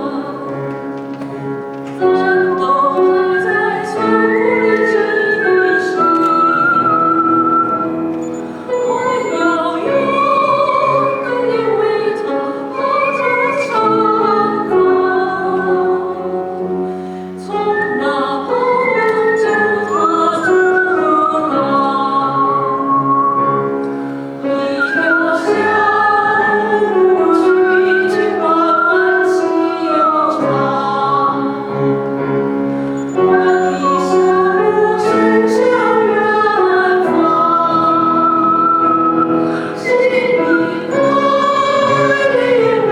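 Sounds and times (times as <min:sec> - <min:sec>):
instrumental accompaniment: 0:00.0 - 0:42.9
person singing operatically: 0:39.8 - 0:42.9.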